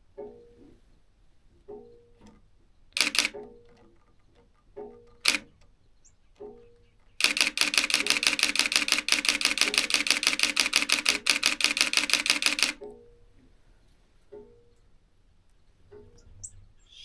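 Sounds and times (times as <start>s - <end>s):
camera shutter clicks: 3.0s - 3.4s, 5.2s - 5.5s, 7.2s - 12.8s.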